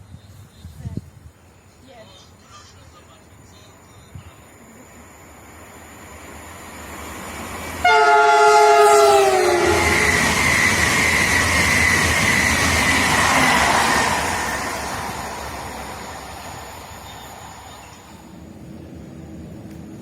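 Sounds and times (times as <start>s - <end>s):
rush of passing train: 0.0s - 20.0s
train horn blast: 7.8s - 10.4s.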